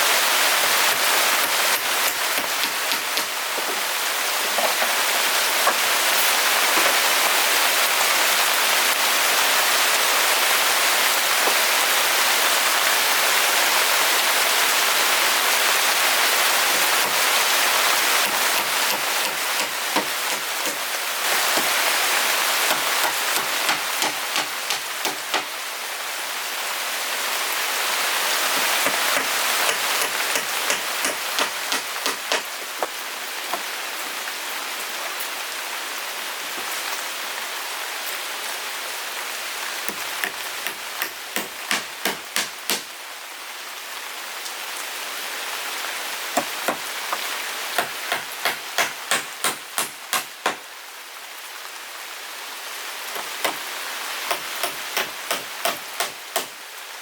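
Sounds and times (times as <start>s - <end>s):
rain hiss: 0.0s - 57.0s
hammer striking wood: 2.0s - 3.8s, 18.2s - 20.8s, 22.7s - 25.5s, 28.6s - 32.9s, 39.9s - 42.9s, 46.4s - 47.2s, 47.8s - 50.6s, 53.2s - 53.6s, 54.3s - 56.5s.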